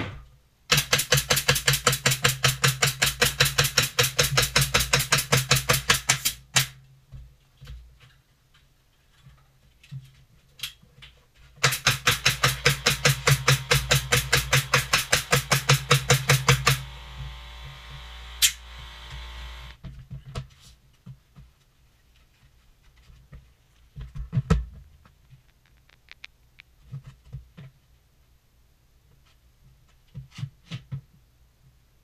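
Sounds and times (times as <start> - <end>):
pneumatic tool striking wood: 11.6 - 19.8
steady noise: 11.6 - 19.8.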